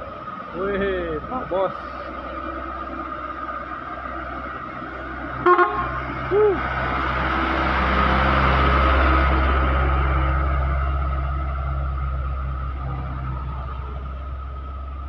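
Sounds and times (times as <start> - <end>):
heavy vehicle engine rumbling: 0.0 - 15.0
vehicle horn toot: 5.4 - 6.0.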